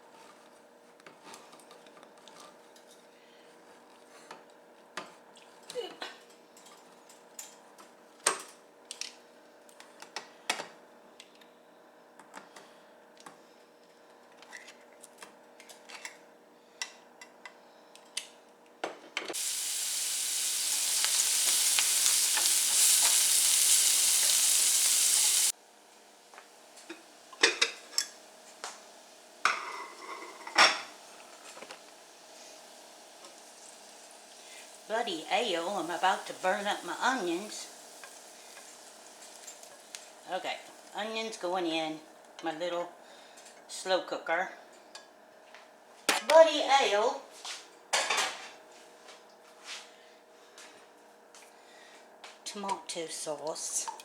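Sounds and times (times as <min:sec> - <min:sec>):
onions sizzling in frying pan: 0:19.4 - 0:41.4.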